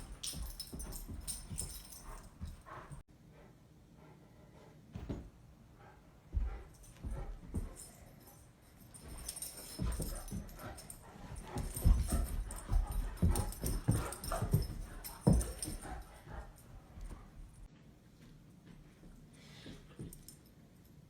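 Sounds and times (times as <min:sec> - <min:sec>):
bumps and thuds: 0:00.0 - 0:02.7, 0:09.0 - 0:16.1
dog play noises: 0:00.0 - 0:17.7
scuffling: 0:09.0 - 0:17.7.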